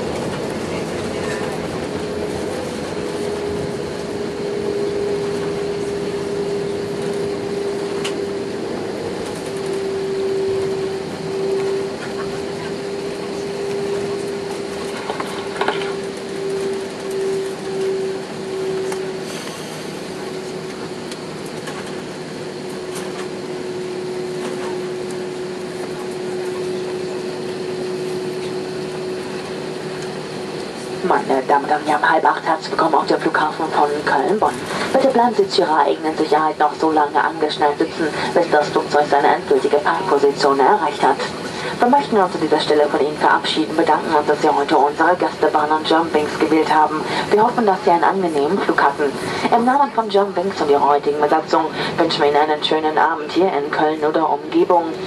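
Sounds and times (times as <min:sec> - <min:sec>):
aircraft cabin rumble: 0:00.0 - 0:55.0
idling jet engines hiss: 0:00.0 - 0:55.0
steady cabin hum: 0:00.0 - 0:55.0.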